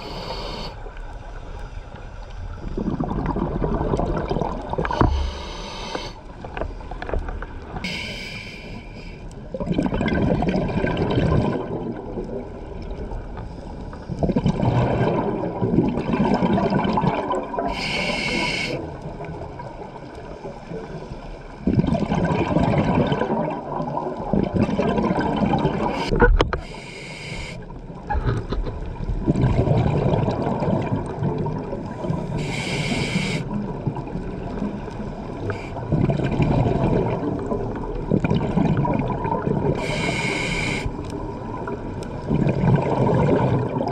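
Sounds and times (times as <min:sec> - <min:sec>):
regulator inhale hiss: 0:00.0 - 0:00.9, 0:04.8 - 0:07.0, 0:07.8 - 0:09.4, 0:17.7 - 0:18.9, 0:25.9 - 0:27.7, 0:32.0 - 0:33.6, 0:35.4 - 0:35.8, 0:39.8 - 0:41.2
exhaled bubbles rushing: 0:02.6 - 0:05.4, 0:09.5 - 0:13.0, 0:14.1 - 0:17.8, 0:21.6 - 0:26.3, 0:28.9 - 0:32.3, 0:35.3 - 0:40.0, 0:41.2 - 0:43.9.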